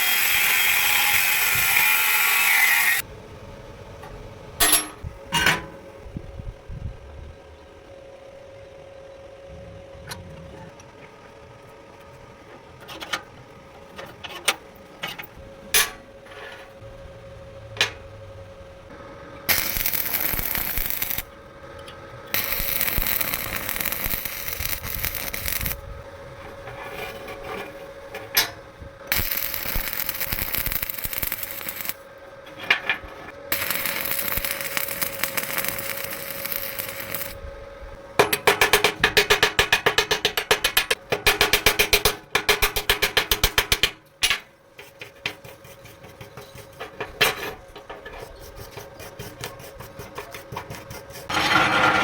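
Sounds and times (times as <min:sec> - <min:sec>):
power tool hissing on steel: 0:00.0 - 0:03.0, 0:19.5 - 0:21.3, 0:22.3 - 0:25.8, 0:29.1 - 0:32.1, 0:33.5 - 0:37.4.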